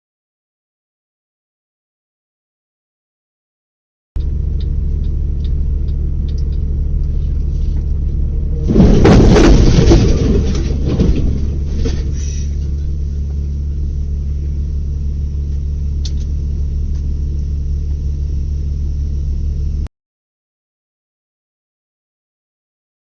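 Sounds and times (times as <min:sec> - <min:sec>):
vehicle driving drone: 0:04.2 - 0:19.9
crash with impacts and scraping: 0:08.5 - 0:13.7.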